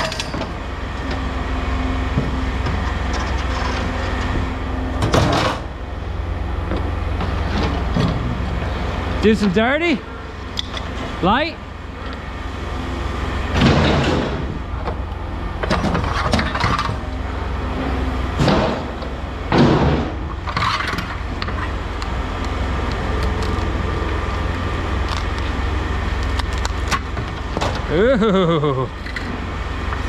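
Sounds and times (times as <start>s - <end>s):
engine running: 0.0s - 30.0s
wood crunching and splintering: 22.4s - 28.1s.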